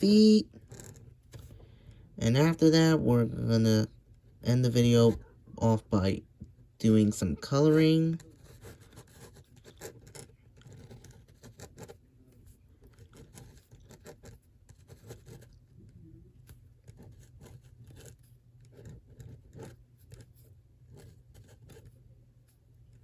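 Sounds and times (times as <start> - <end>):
low steady hum: 0.0 - 23.0
drawing tool scratching paper: 0.6 - 1.5, 6.8 - 23.0.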